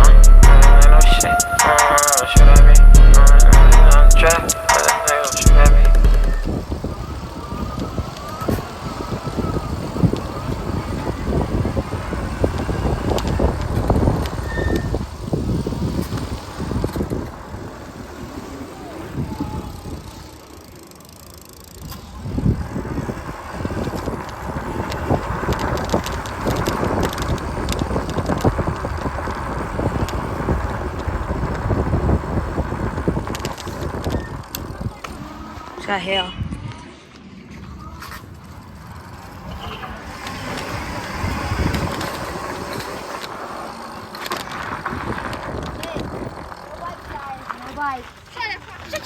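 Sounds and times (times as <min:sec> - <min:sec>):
scattered clicks: 0:00.0 - 0:06.5, 0:23.9 - 0:28.6
wind: 0:00.0 - 0:49.0
road rumble from bikes: 0:02.2 - 0:49.0.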